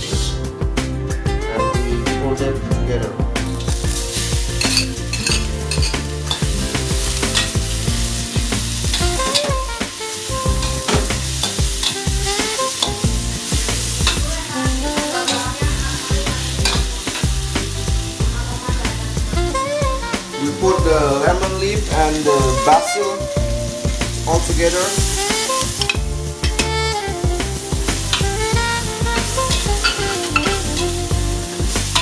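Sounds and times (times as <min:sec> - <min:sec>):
food sizzling in hot oil: 0:00.0 - 0:00.6, 0:03.5 - 0:32.0
spoon tapping and scraping pan: 0:03.7 - 0:17.9.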